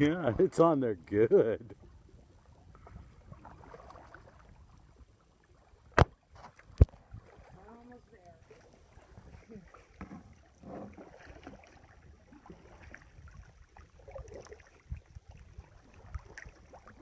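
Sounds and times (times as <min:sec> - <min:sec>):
paddle splashing in water: 0:01.8 - 0:17.0.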